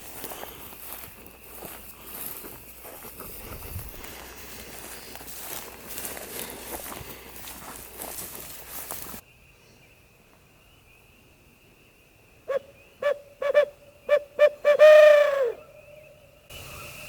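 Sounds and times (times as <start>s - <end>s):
owl hooter call hoots: 12.5s - 16.1s.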